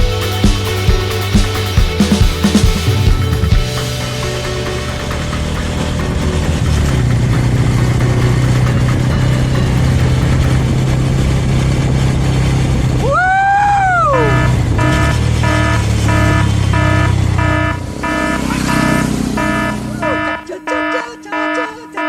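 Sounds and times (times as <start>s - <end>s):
motorcycle engine cruising: 0.0s - 20.5s
high gliding tone: 13.8s - 22.0s.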